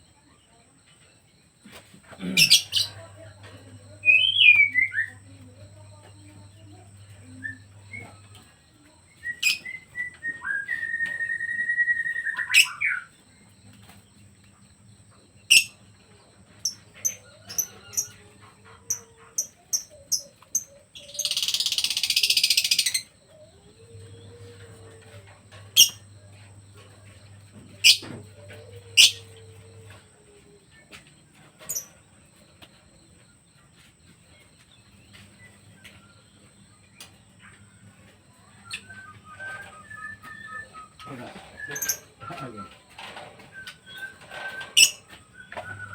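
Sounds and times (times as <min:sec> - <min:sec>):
bird chirps: 0:02.2 - 0:08.4, 0:09.1 - 0:13.2, 0:15.4 - 0:15.8, 0:19.4 - 0:30.0, 0:38.3 - 0:45.9.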